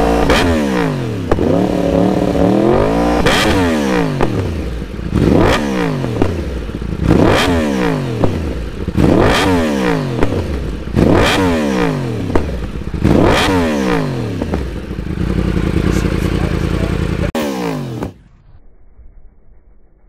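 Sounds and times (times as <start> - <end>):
motorcycle engine revving: 0.0 - 19.8
exhaust cracking: 0.0 - 20.0.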